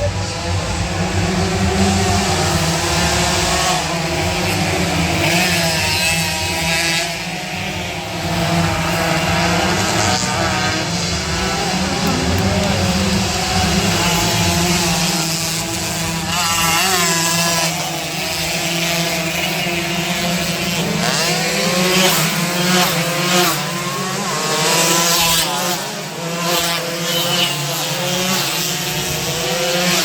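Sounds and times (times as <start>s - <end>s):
motorcycle engines revving and passing: 0.0s - 30.0s
steady low drone: 9.7s - 16.8s.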